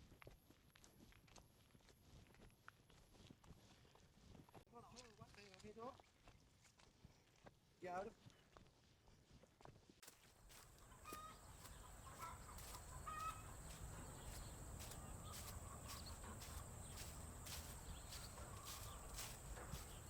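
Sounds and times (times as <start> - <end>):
chickens clucking: 10.4 - 20.0.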